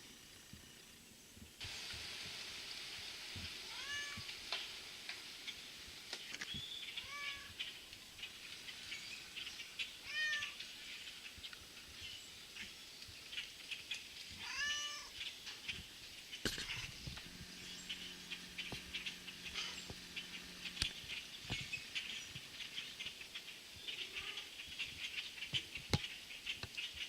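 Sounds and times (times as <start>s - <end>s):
cat-like mewing bird calls: 3.7s - 4.3s, 6.9s - 7.6s, 10.0s - 10.6s, 14.4s - 15.2s, 16.6s - 21.3s, 23.9s - 24.6s
starling flock chattering: 6.2s - 27.0s.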